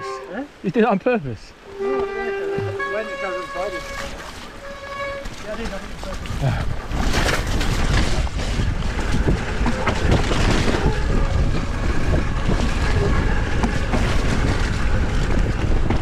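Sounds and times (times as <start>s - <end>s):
wind on microphone: 1.8s - 16.0s
tyre rumble on trail: 5.0s - 16.0s
bike rattles and clicks: 5.1s - 16.0s.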